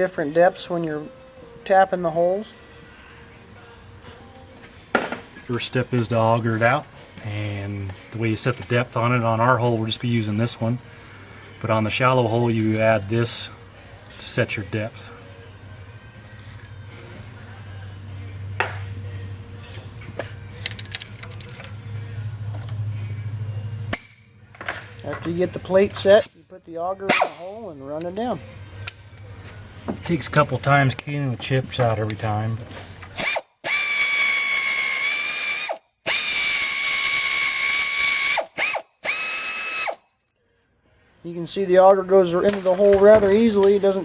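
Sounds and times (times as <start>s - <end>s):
steady low hum: 0.2s - 26.6s, 27.7s - 33.2s
metal tools clinking: 5.2s - 5.7s, 12.3s - 14.7s, 16.2s - 16.9s, 19.6s - 21.9s
power drill cutting metal: 33.2s - 40.0s.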